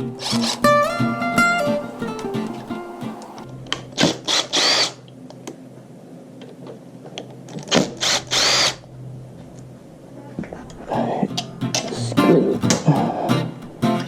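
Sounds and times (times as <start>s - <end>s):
power drill bursts: 0.2s - 0.8s, 4.1s - 5.0s, 8.0s - 8.8s.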